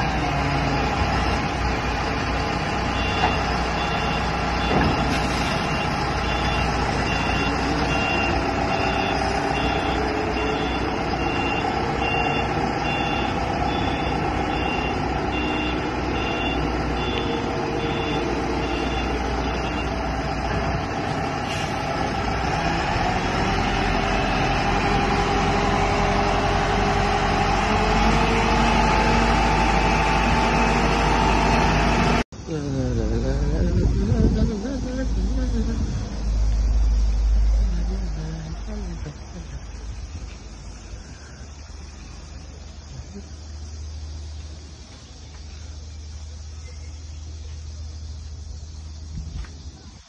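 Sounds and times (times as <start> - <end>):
heavy vehicle engine running: 0.0 - 50.0
back-up alarm beeping: 3.0 - 20.0.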